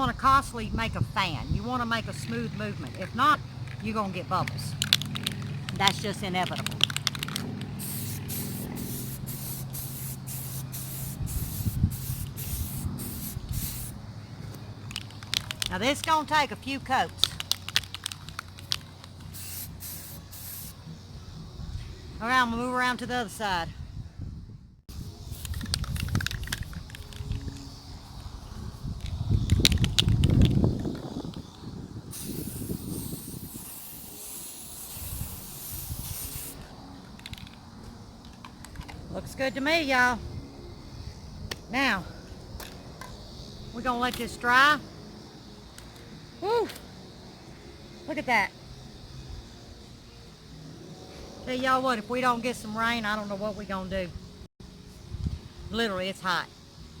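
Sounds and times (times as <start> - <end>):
spray paint can hissing: 4.5 - 14.0, 14.9 - 16.3, 17.1 - 21.1, 24.9 - 37.6.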